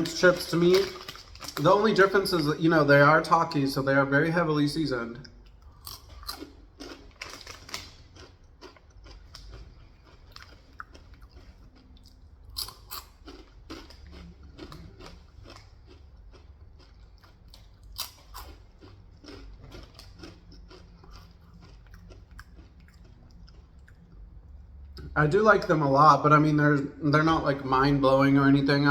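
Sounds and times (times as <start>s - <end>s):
chewing crunchy chips: 0.0s - 2.6s, 5.2s - 25.1s.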